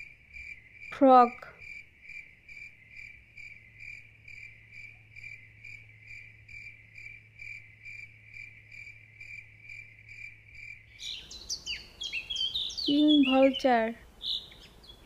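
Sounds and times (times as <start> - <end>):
animal chirping: 10.9 - 15.0.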